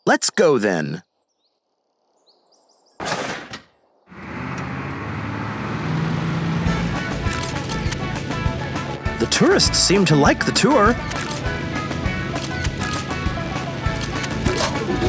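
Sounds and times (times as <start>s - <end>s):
faint bird chirps: 1.0s - 3.0s
steady bus engine: 4.1s - 15.0s.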